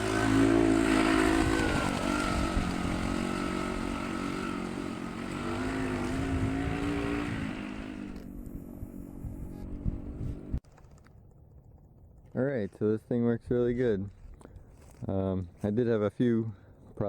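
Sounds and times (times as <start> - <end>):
minibike engine running: 0.0 - 12.1.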